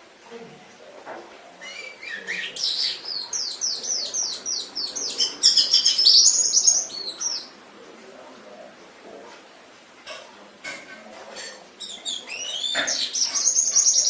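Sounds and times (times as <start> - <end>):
canary singing: 1.6 - 7.6, 11.8 - 14.0.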